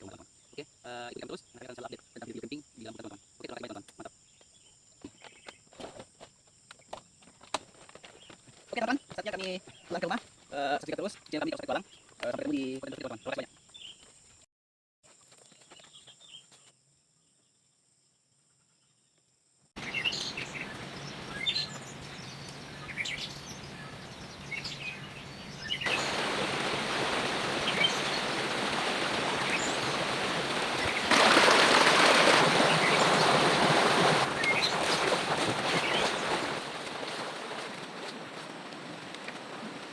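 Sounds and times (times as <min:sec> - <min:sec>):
birds chirping: 0:08.0 - 0:14.3, 0:19.8 - 0:38.2.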